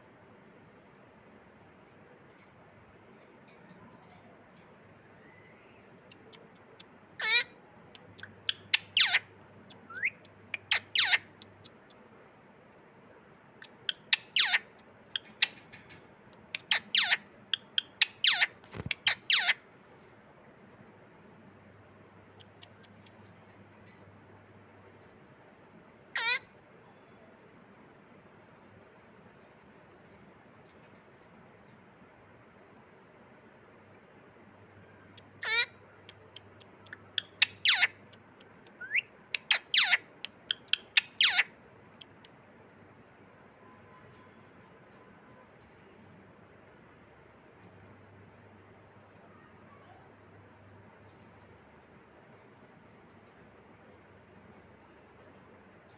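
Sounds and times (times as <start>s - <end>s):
parrot screeching: 7.2s - 7.6s, 8.7s - 9.3s, 9.9s - 11.3s, 13.9s - 15.6s, 16.6s - 17.2s, 17.8s - 19.6s, 26.2s - 26.5s, 35.4s - 35.8s, 37.2s - 38.0s, 38.8s - 41.5s.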